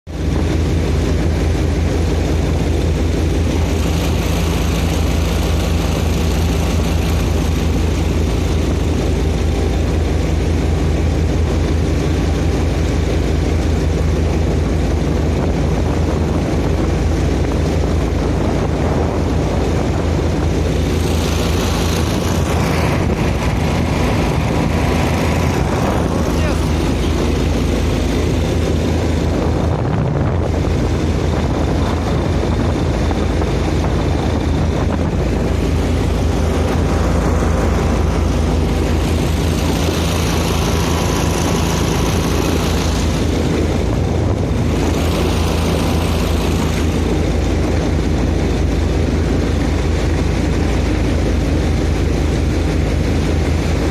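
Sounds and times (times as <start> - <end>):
boat engine droning: 0.1 - 53.9
high hissing rush: 20.5 - 29.6.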